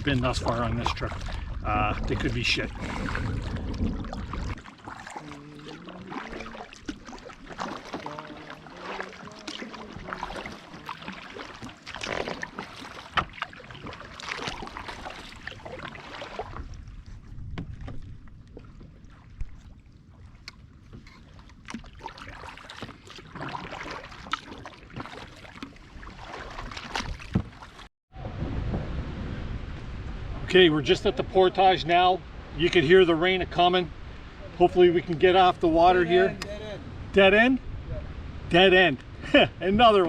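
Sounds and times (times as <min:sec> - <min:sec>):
low rumble: 0:00.0 - 0:04.7, 0:28.2 - 0:35.0
paddles splashing in water: 0:00.0 - 0:29.0.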